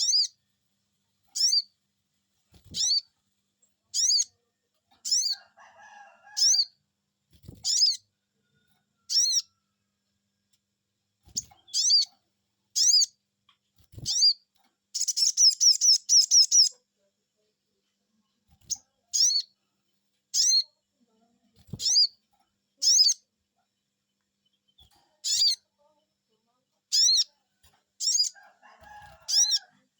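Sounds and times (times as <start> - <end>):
fast bird trill: 15.0 - 16.7, 28.0 - 28.4, 29.3 - 29.6.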